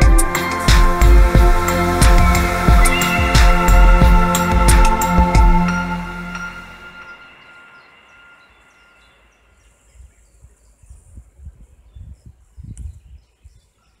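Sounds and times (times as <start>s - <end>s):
soft background music: 0.0s - 9.7s
wind rumble on microphone: 9.9s - 13.8s.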